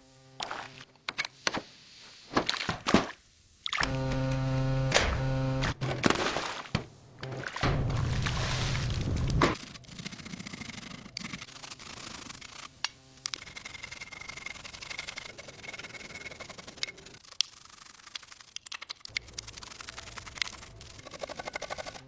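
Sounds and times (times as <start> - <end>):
rubbing and scraping: 5.6 - 22.0.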